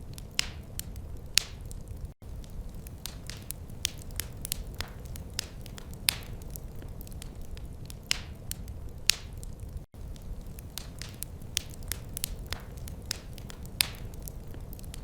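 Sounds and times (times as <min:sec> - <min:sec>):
sharp pops of fire: 0:00.0 - 0:15.0
wood fire crackling: 0:00.0 - 0:15.0.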